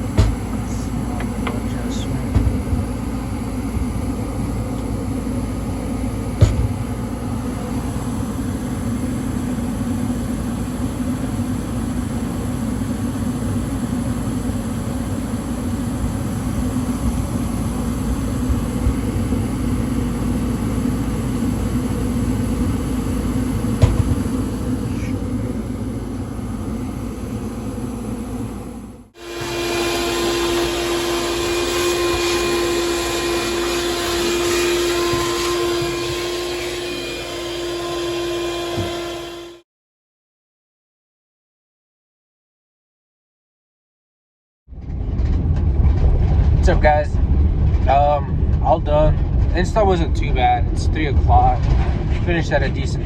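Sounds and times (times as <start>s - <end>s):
gas furnace running: 0.0s - 39.6s, 44.8s - 53.0s
motor whine with held tone: 0.0s - 39.6s.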